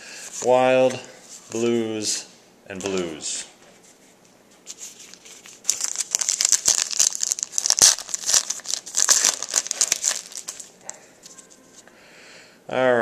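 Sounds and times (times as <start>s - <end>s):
wrapper tearing and crinkling: 4.8s - 10.9s.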